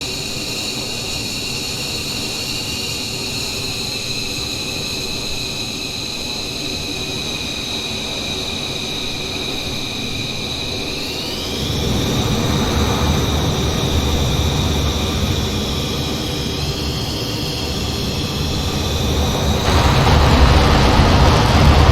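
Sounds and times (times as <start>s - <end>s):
jet engines whining: 10.1s - 21.9s
deep engine rumble: 11.6s - 21.9s.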